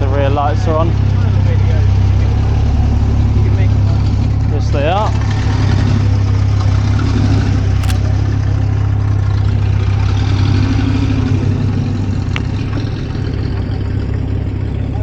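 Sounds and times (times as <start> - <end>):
short clicks: 7.8 - 8.1.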